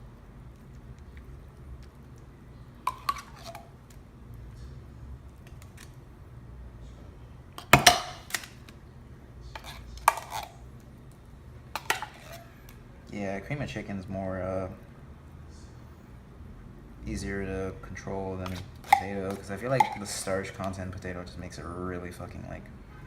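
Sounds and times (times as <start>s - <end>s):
spoon clinking against container: 2.9s - 3.7s, 18.5s - 20.2s.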